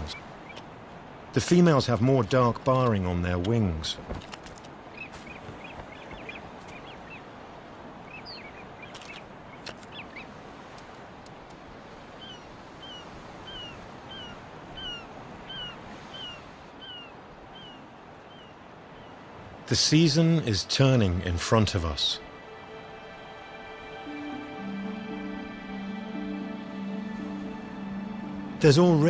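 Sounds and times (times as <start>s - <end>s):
bird chirping calls: 4.8s - 7.3s, 8.0s - 10.4s, 12.1s - 19.3s.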